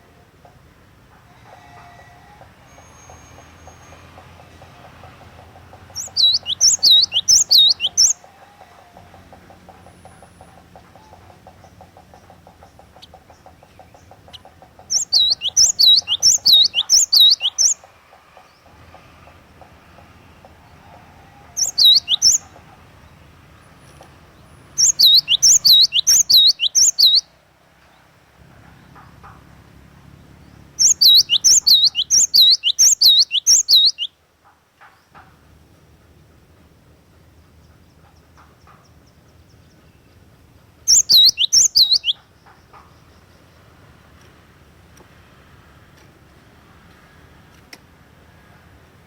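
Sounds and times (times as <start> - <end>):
faint high ticking bird calls: 0.0 - 45.2
bird chirping sharp high whistles: 2.7 - 3.9, 6.0 - 8.2, 15.0 - 17.8, 21.6 - 22.4, 24.8 - 27.3, 30.8 - 34.1, 40.9 - 42.2.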